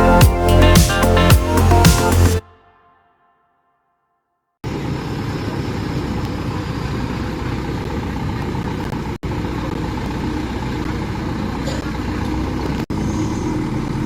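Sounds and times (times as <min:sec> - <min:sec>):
road traffic noise: 0:04.6 - 0:14.0
truck engine running: 0:04.7 - 0:14.0.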